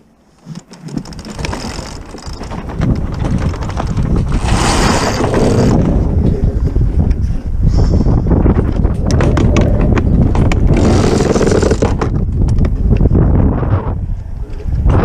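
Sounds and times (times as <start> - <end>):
wind buffeting microphone: 0.8 - 15.0.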